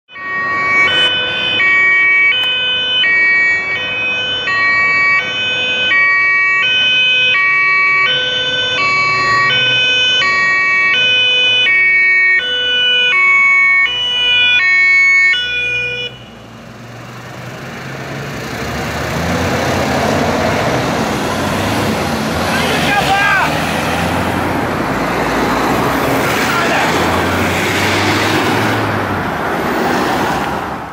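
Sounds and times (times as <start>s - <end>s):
two-tone emergency siren: 0.1s - 16.8s, 20.9s - 29.1s
vehicle and road noise: 0.1s - 30.9s.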